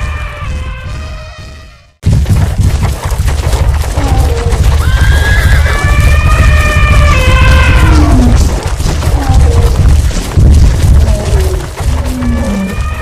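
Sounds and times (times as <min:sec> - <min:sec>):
galloping hooves pounding: 0:00.0 - 0:13.0
high animal call: 0:04.0 - 0:08.4.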